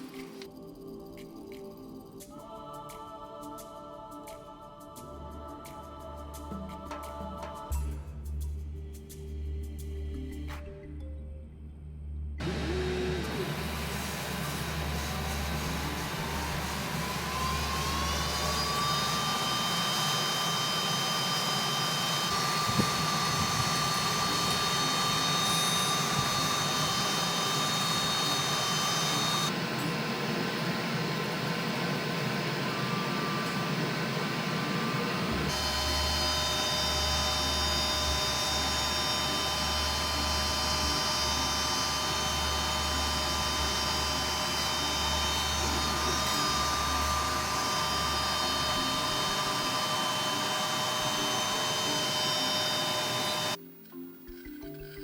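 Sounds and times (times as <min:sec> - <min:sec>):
power tool motor whining: 0:12.4 - 0:53.6.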